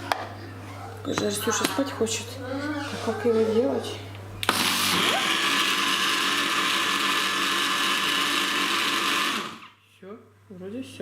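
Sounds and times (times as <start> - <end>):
electric blender running: 4.4 - 9.8.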